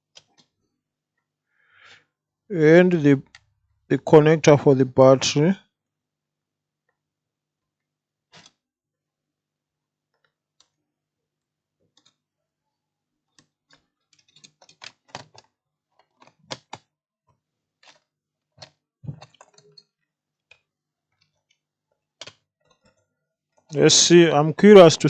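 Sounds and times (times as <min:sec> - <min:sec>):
plastic laptop parts clicking: 0:08.3 - 0:08.6, 0:13.3 - 0:16.9, 0:17.8 - 0:23.0.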